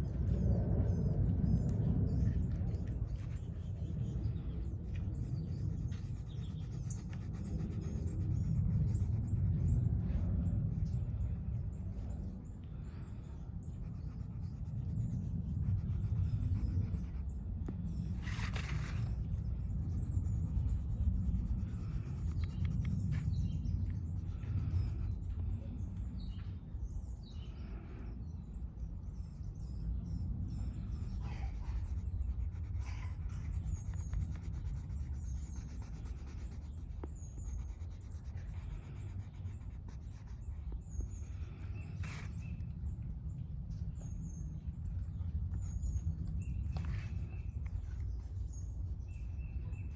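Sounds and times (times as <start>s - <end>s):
low outdoor rumble: 0.0s - 49.9s
small birds chirping: 0.0s - 49.9s
coloring strokes on paper: 3.0s - 12.3s, 13.6s - 25.8s, 30.6s - 42.6s.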